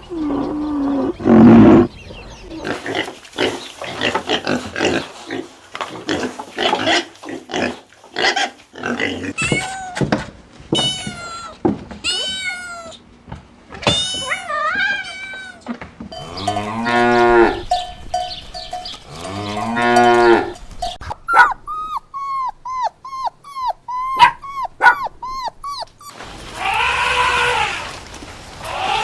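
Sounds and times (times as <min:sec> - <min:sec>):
rough animal call: 0:00.0 - 0:09.8, 0:19.0 - 0:29.0
cow mooing: 0:16.1 - 0:17.8, 0:19.1 - 0:20.6.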